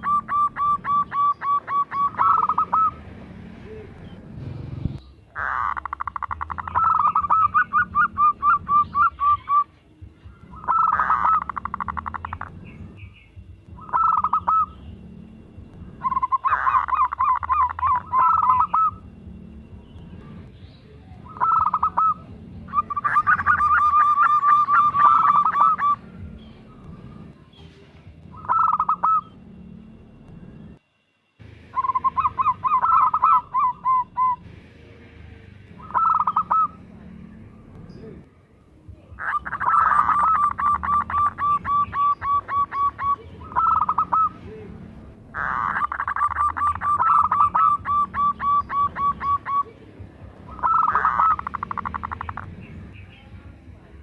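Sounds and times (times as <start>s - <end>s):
dove cooing: 0.0s - 4.2s, 5.3s - 9.7s, 10.5s - 12.5s, 13.8s - 14.8s, 16.0s - 19.1s, 21.2s - 26.3s, 28.3s - 29.4s, 31.8s - 34.5s, 35.8s - 36.8s, 39.1s - 49.9s, 50.5s - 52.5s.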